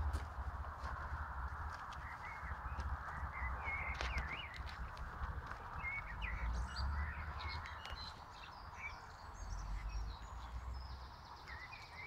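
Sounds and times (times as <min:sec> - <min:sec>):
outdoor background rumble: 0:00.0 - 0:12.0
small bird chirping: 0:02.0 - 0:12.0.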